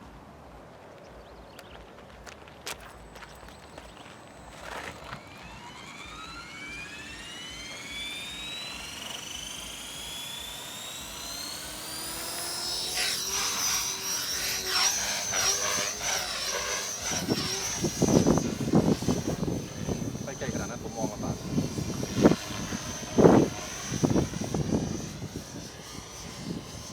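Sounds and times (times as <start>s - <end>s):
model airplane motor whine: 2.6s - 26.9s.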